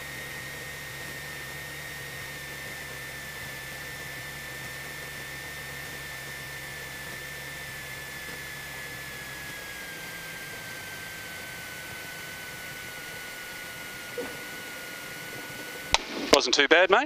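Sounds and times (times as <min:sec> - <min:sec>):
small plane cabin engine noise: 0:00.0 - 0:17.0
high whine dropping in pitch: 0:06.8 - 0:17.0.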